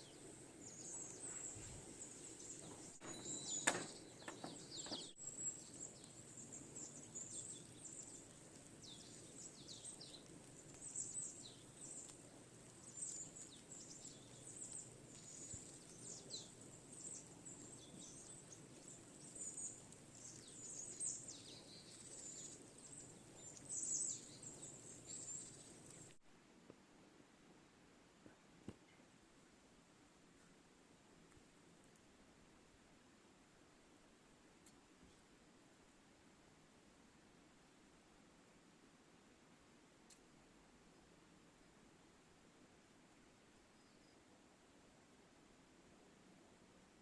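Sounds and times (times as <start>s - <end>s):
small birds chirping: 0.0s - 26.2s, 43.6s - 44.4s
quiet outdoor hiss: 0.0s - 47.0s.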